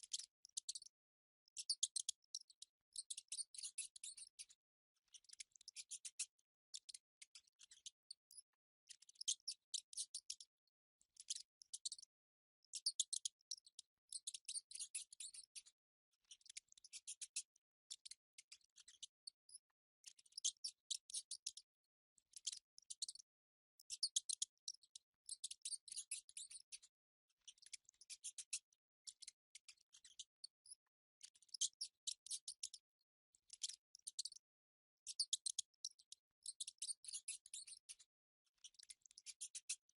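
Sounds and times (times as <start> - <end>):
mice high-pitched clicking chatter: 35.2 - 38.1.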